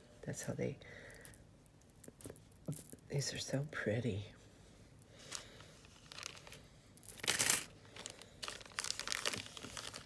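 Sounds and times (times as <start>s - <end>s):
plastic packets crinkling: 5.2s - 10.0s.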